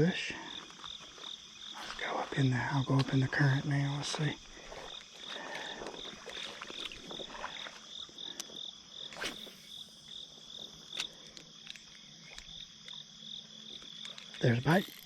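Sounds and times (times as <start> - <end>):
insects chirping: 0.0 - 15.0
faint clicks: 8.3 - 8.6, 10.9 - 13.0, 13.7 - 15.0.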